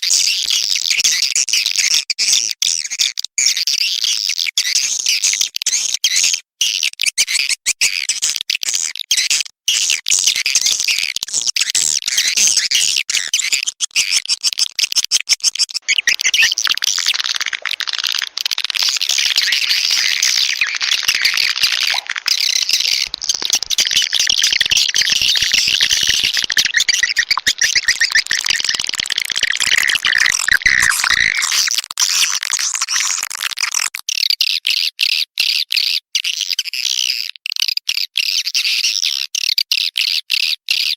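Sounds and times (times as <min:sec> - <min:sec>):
swiftlets twittering and chattering: 0:15.8 - 0:33.0.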